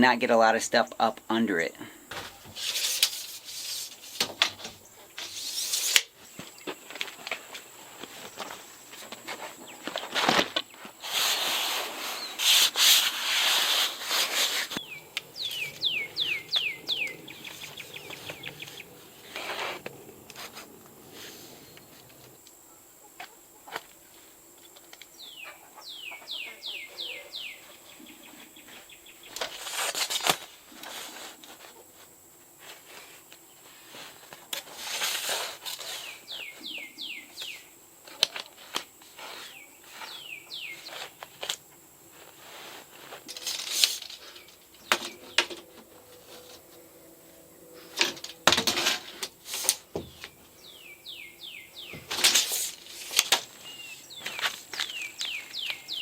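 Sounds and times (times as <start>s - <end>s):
rustling noise bursts: 2.1s - 22.4s
small bird singing: 12.0s - 12.6s, 14.1s - 22.3s, 25.1s - 29.4s, 35.9s - 37.8s, 39.4s - 41.2s, 44.2s - 48.0s, 50.0s - 52.2s, 53.5s - 56.0s.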